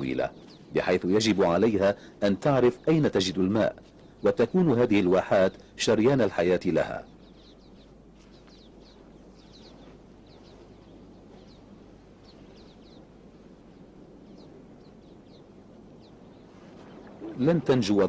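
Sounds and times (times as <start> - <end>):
faint birds chirping: 0.0 - 18.0
low outdoor background hiss: 0.0 - 18.0.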